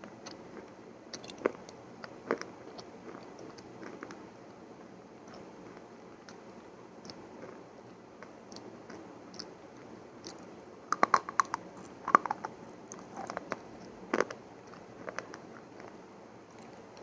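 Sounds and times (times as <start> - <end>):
crunchy chewing: 10.2 - 17.0.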